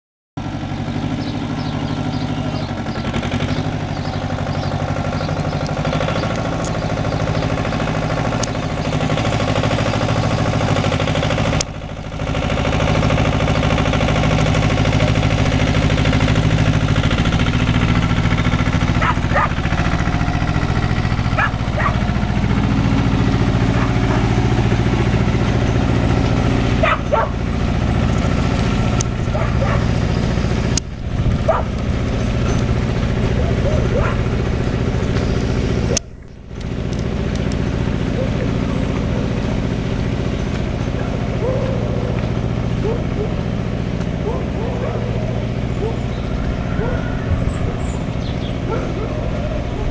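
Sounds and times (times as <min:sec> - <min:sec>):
tractor engine running: 0:00.4 - 0:49.9
dog barking: 0:19.0 - 0:19.6, 0:21.4 - 0:22.0, 0:23.7 - 0:24.3, 0:26.8 - 0:27.4, 0:29.3 - 0:29.9, 0:31.5 - 0:31.7, 0:33.4 - 0:34.3, 0:41.0 - 0:42.2, 0:42.8 - 0:43.4, 0:44.2 - 0:45.2, 0:45.8 - 0:46.0, 0:46.8 - 0:47.1, 0:48.7 - 0:49.9.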